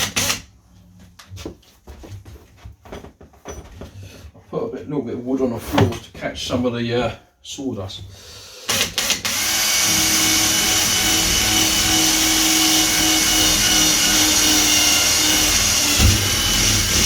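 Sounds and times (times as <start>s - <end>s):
power drill boring wood: 8.6s - 17.0s.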